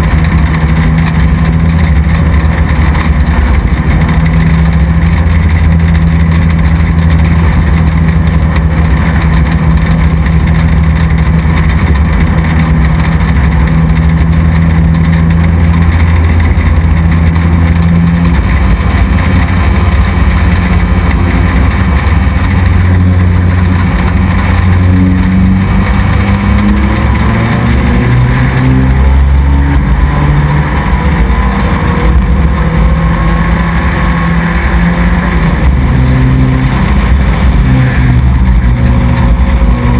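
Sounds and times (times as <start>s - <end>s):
race truck engine revving: 0.0s - 39.9s.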